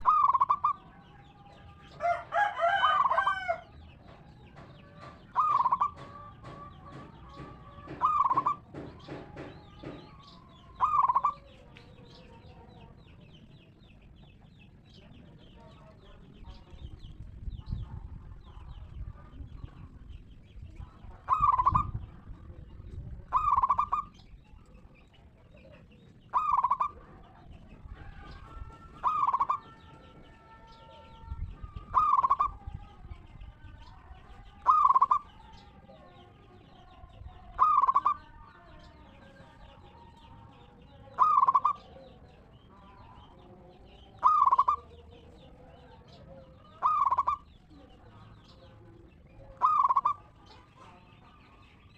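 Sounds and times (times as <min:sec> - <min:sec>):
dove cooing: 0:00.0 - 0:13.0, 0:20.6 - 0:51.8
rooster crowing: 0:02.0 - 0:03.8.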